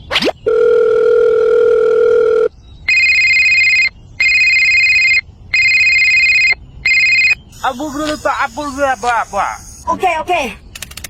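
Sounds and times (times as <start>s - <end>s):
two-tone electronic ring: 0.5s - 7.4s.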